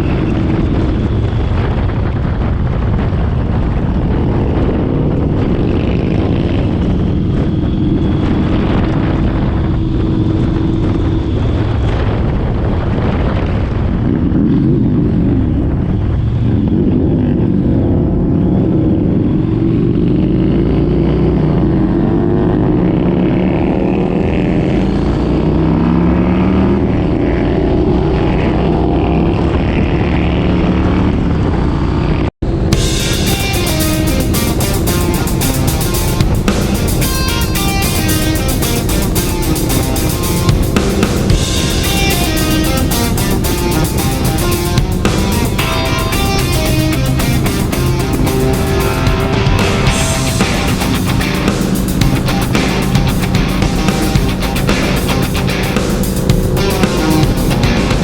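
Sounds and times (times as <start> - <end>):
motorcycle engine revving: 16.3 - 58.0.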